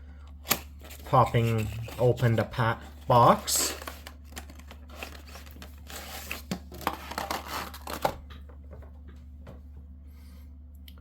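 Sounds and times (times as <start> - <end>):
cardboard box scraping and rustling: 4.9 - 8.0.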